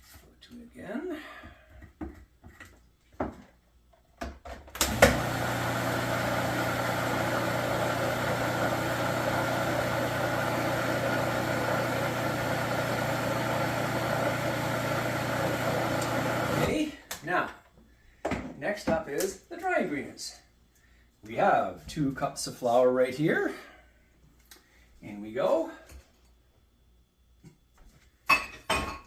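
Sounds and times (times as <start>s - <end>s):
blender switch click: 4.8s - 5.3s
electric blender running: 4.8s - 16.8s.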